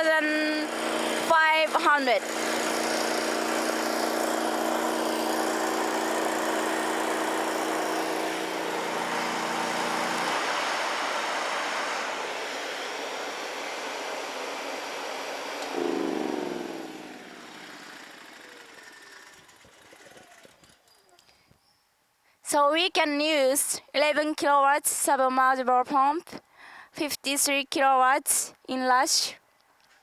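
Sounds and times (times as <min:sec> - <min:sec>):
pump electrical hum: 0:00.0 - 0:19.9
generator running: 0:00.0 - 0:20.6
machinery winding down: 0:00.4 - 0:20.6.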